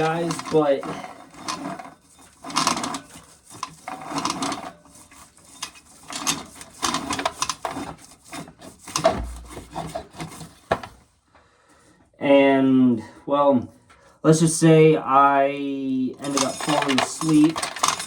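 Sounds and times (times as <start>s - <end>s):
scraping and rubbing strokes: 0.0s - 10.7s
low thump: 9.1s - 9.9s.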